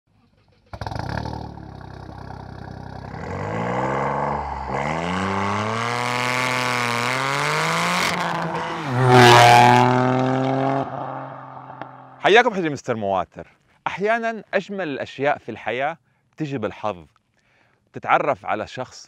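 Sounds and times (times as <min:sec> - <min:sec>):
car engine accelerating: 0:00.3 - 0:12.2.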